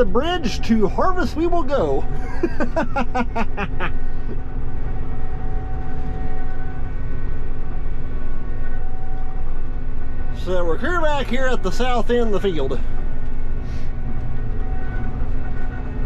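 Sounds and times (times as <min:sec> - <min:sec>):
man talking: 0:00.0 - 0:02.1, 0:10.4 - 0:12.9
drivetrain whine: 0:00.0 - 0:16.0
harvester engine rumble: 0:00.0 - 0:16.0.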